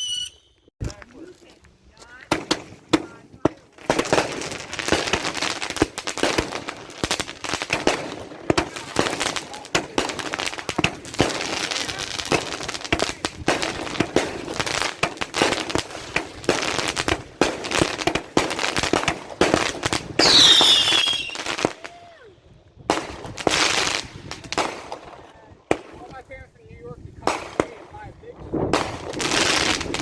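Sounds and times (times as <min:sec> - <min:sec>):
firework whistle falling in pitch: 0:00.0 - 0:00.6, 0:20.2 - 0:22.0
fireworks bangs and crackles: 0:00.8 - 0:30.0.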